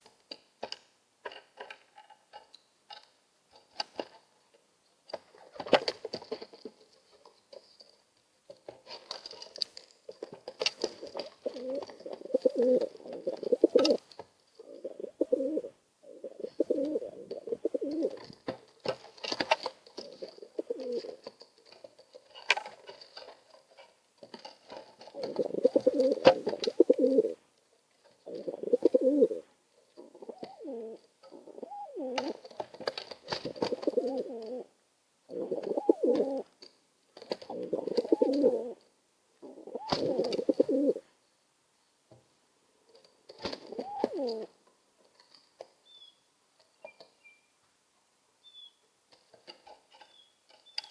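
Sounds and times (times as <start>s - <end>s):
pigeons cooing: 10.8s - 14.0s, 14.6s - 18.4s, 20.0s - 21.3s, 25.0s - 27.4s, 28.2s - 32.5s, 33.3s - 34.7s, 35.3s - 36.5s, 37.5s - 38.8s, 39.4s - 41.1s, 43.5s - 44.6s.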